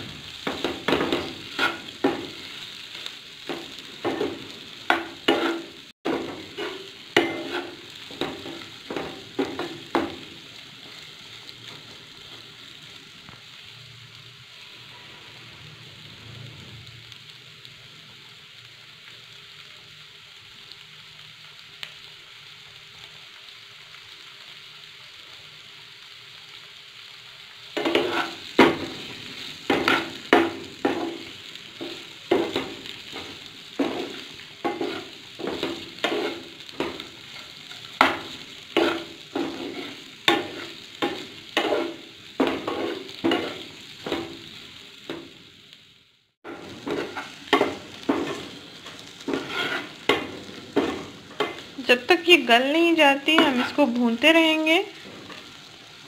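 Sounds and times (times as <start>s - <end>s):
liver sizzling in a frying pan: 0.0s - 56.0s
spatula scraping a pan: 0.4s - 10.2s, 27.8s - 44.3s, 46.4s - 51.8s, 53.2s - 54.0s.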